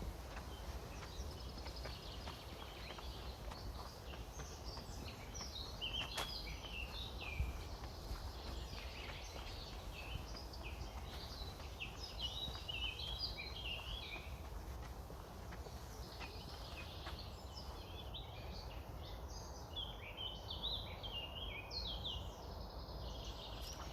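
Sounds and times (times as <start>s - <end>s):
wind rumble on microphone: 0.0s - 19.1s
songbirds chirping and singing: 0.0s - 23.9s.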